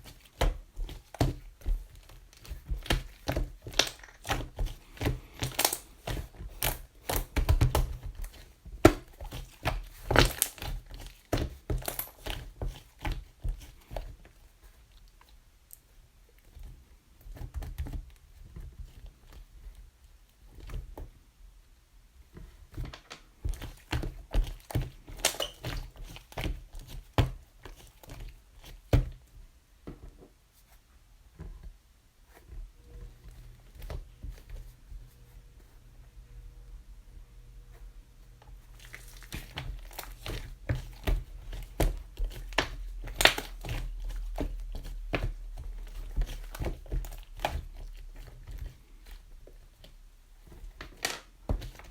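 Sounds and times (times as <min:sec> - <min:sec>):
wrapping crinkling: 0:38.6 - 0:49.8.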